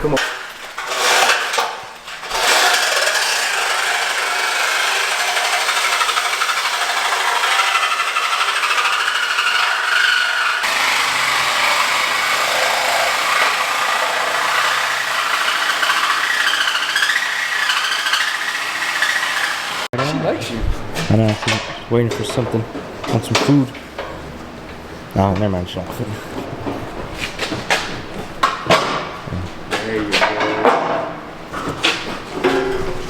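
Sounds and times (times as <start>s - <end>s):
power saw cutting metal pipe: 0.1s - 19.9s.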